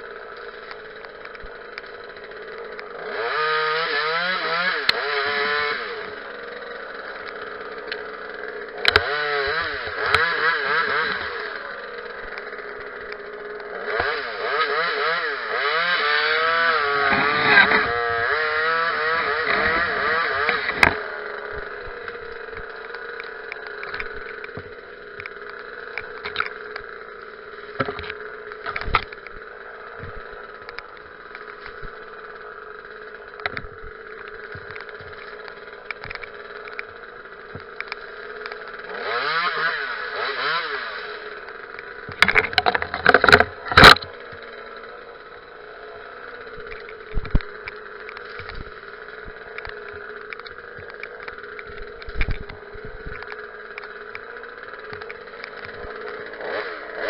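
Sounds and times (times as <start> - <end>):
chainsaw engine idling and revving: 0.0 - 57.0.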